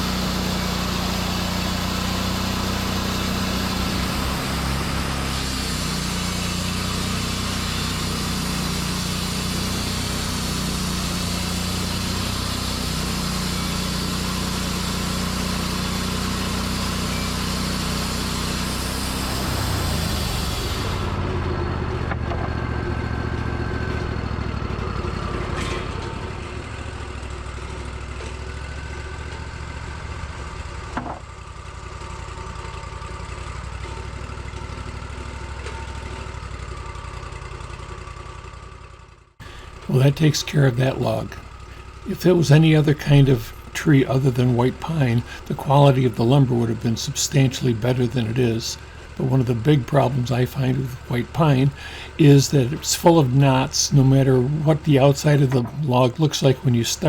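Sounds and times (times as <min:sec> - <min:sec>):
saw blade cutting wood: 0:00.0 - 0:21.2, 0:39.4 - 0:57.0
sawmill engine running: 0:00.0 - 0:57.0.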